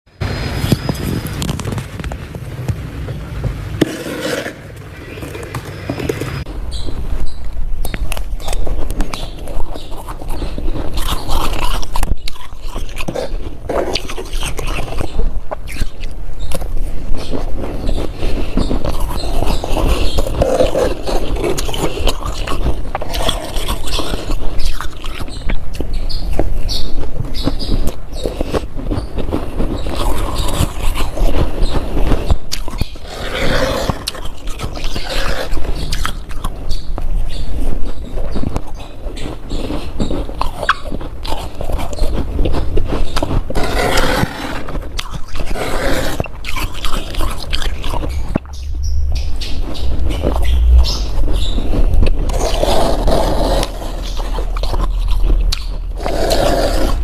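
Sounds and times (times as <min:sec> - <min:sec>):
spoon scraping frost: 0:03.8 - 0:06.5, 0:08.1 - 0:25.9, 0:38.4 - 0:48.6, 0:49.4 - 0:57.0
ice being bitten and chewed: 0:07.8 - 0:57.0.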